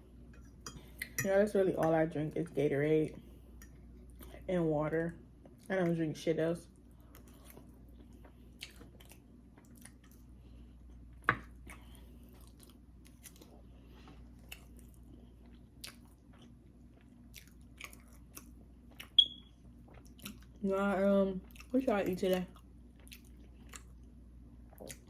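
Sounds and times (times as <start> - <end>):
close chewing of food: 6.8 - 20.6, 21.3 - 25.0.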